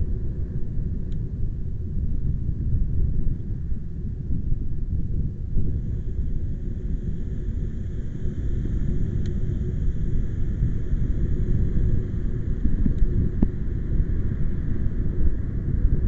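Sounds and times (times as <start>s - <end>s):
wind buffeting microphone: 0.0s - 16.0s
faint hiss: 5.6s - 16.0s
small tick: 12.6s - 13.5s.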